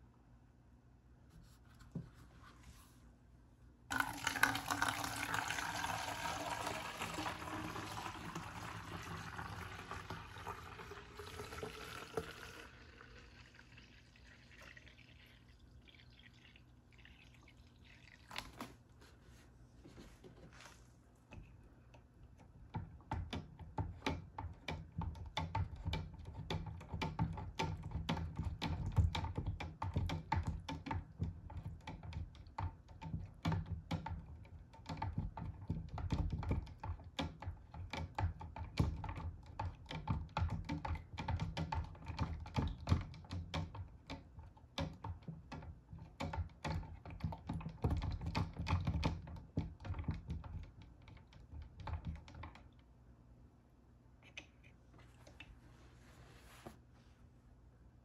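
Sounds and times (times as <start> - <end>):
liquid pouring into container: 3.9 - 18.8.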